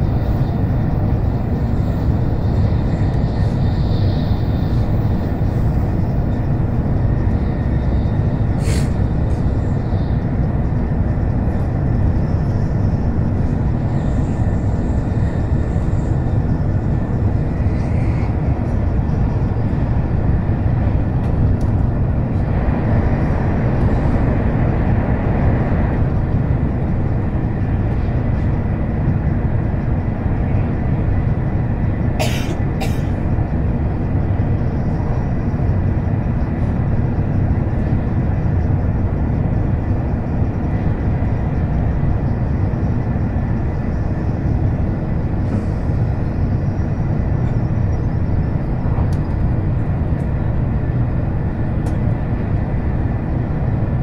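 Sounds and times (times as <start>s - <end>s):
train cabin rumble: 0.0s - 54.0s.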